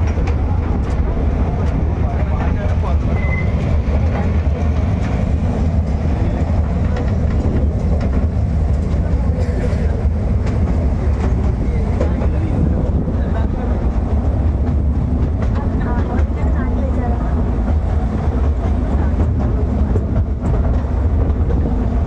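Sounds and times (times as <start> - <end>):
miniature train rumbling: 0.0 - 22.0.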